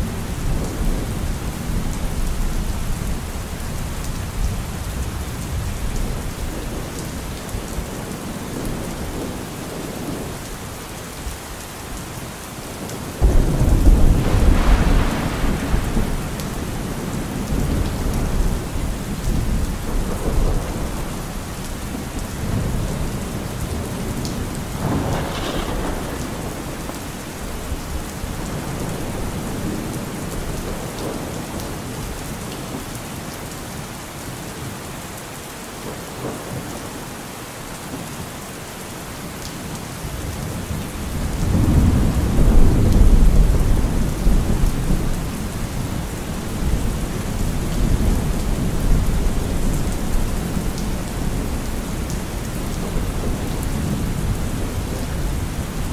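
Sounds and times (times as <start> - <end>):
steady rain: 0.0 - 55.9
thunder rumbling: 13.2 - 32.2, 40.5 - 55.9.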